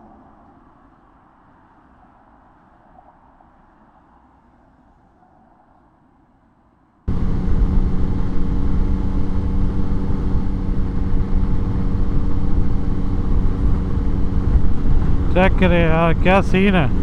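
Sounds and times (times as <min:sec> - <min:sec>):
motorcycle engine drone: 0:07.1 - 0:17.0
wind rushing on microphone: 0:07.1 - 0:17.0.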